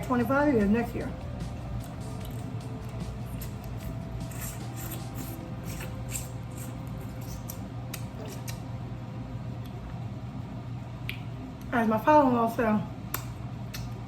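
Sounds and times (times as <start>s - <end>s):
low steady hum: 0.0s - 14.0s
mouth eating sounds: 2.0s - 8.7s.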